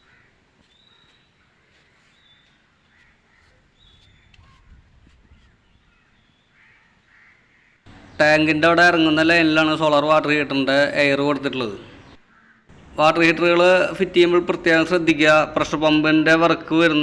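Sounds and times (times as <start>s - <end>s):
faint bird chirps: 0.0s - 8.7s.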